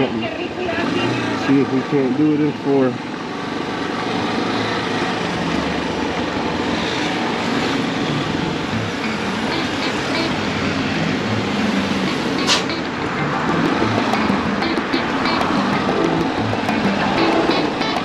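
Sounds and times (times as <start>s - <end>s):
wind and road noise: 0.0s - 18.0s
motorcycle engine running: 7.9s - 18.0s.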